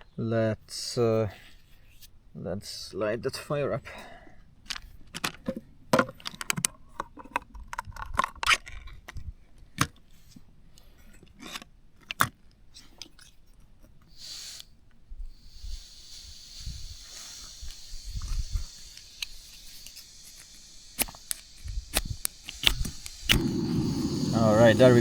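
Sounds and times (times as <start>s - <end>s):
gas burner hissing: 14.1s - 25.0s.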